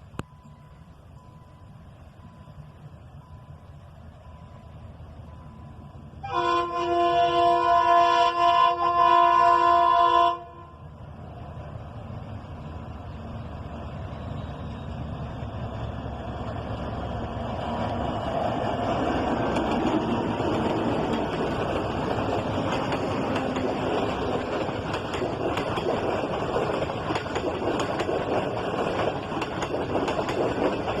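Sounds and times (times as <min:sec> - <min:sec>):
train rumbling along track: 0:00.0 - 0:31.0
locomotive horn chord: 0:06.2 - 0:10.9.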